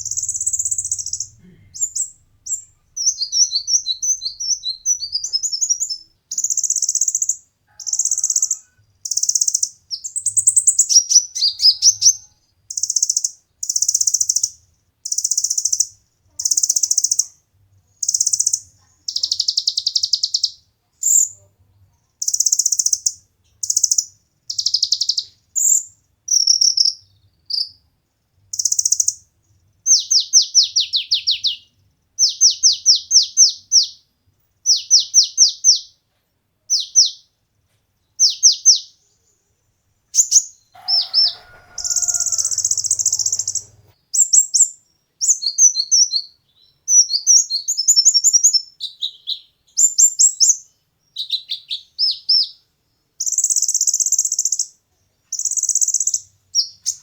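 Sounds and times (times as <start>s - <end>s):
sunbird singing: 0.0s - 21.4s, 29.9s - 36.0s, 40.1s - 52.6s, 53.2s - 57.0s.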